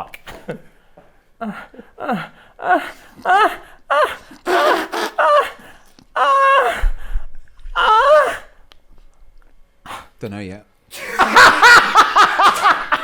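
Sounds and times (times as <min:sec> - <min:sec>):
person moaning and gasping: 0:01.4 - 0:07.0, 0:07.8 - 0:08.6.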